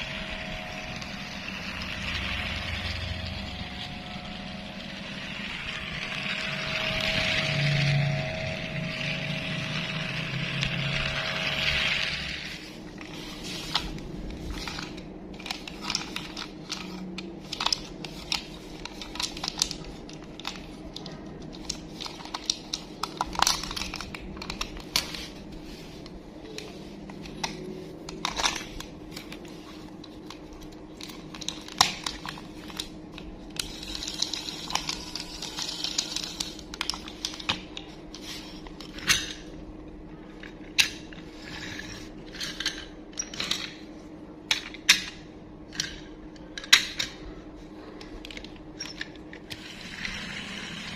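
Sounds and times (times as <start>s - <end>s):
steady whirring: 0.0s - 25.4s.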